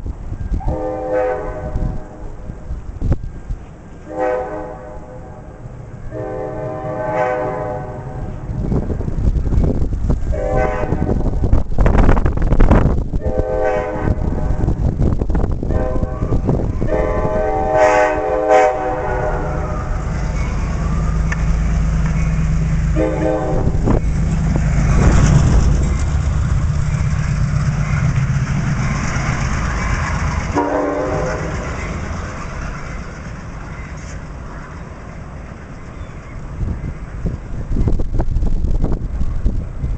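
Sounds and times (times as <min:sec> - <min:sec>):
diesel locomotive passing: 0:00.0 - 0:39.9
locomotive horn blasts: 0:00.6 - 0:02.4, 0:04.1 - 0:08.5, 0:10.3 - 0:11.2, 0:13.2 - 0:14.8, 0:15.7 - 0:20.0, 0:22.9 - 0:24.0, 0:30.5 - 0:31.6.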